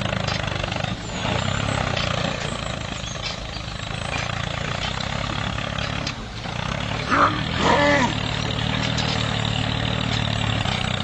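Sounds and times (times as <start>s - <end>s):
small tractor motor pulsing hum: 0.0s - 11.0s.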